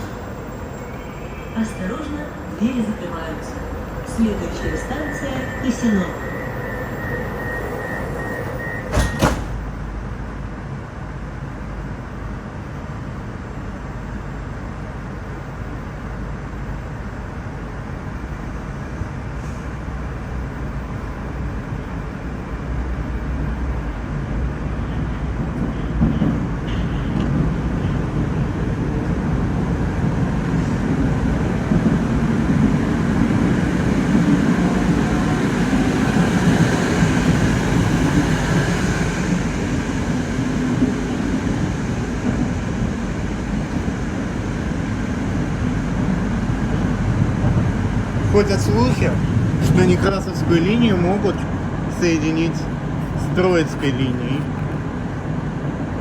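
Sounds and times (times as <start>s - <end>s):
train rumbling: 0.0s - 56.0s
train doors shutting: 4.2s - 10.0s, 25.0s - 28.2s, 32.5s - 45.1s
door warning tone: 4.6s - 9.6s.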